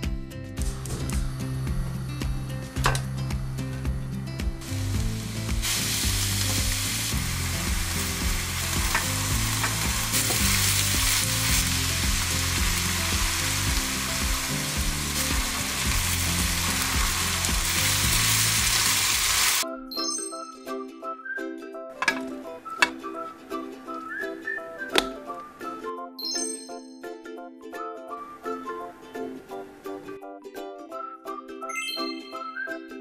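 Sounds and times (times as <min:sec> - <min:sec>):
food sizzling in a frying pan: 0:04.6 - 0:19.6.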